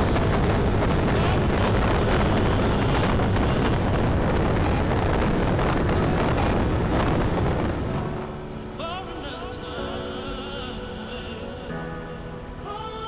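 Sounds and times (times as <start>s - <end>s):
wind buffeting microphone: 0.0s - 10.5s
road noise: 0.0s - 13.0s.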